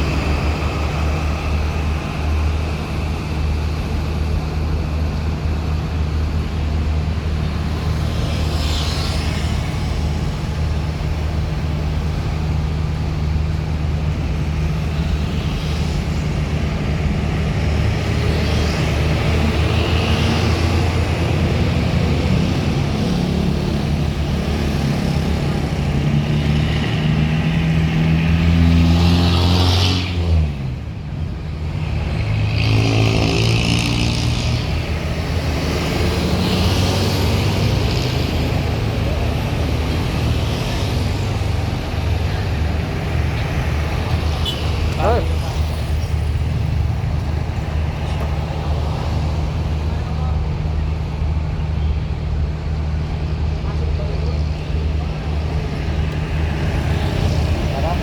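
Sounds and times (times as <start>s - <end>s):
heavy vehicle engine revving: 0.0s - 58.0s.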